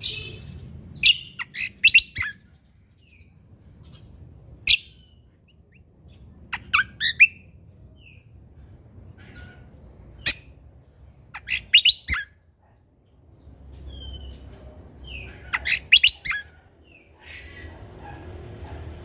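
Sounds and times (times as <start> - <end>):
songbird singing sharp notes: 0.0 - 2.4, 11.4 - 12.3.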